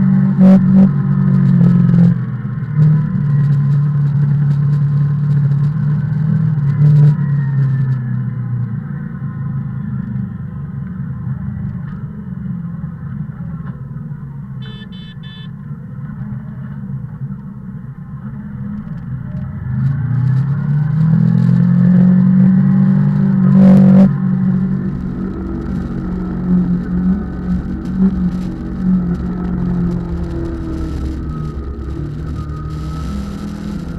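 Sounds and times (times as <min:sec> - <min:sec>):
vehicle engine running: 0:00.0 - 0:33.9
short high beep: 0:14.6 - 0:15.5.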